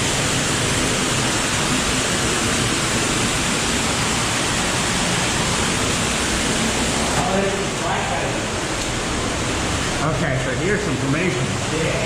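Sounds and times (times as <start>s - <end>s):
cave stream rushing: 0.0s - 12.0s
waterfall roaring: 0.0s - 12.0s.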